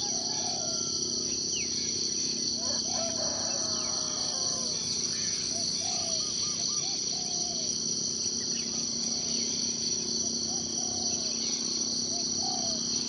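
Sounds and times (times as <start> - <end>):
high-pitched insect drone: 0.0 - 13.0
birds calling: 2.6 - 7.7, 10.5 - 13.0.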